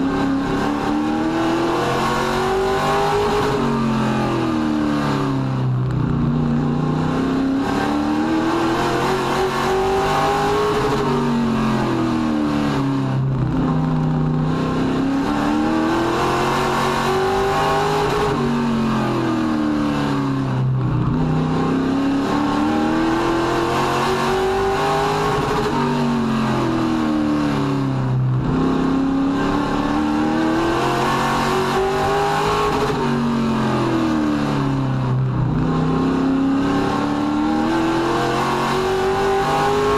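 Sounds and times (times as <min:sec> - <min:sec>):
race truck engine: 0:00.0 - 0:39.9.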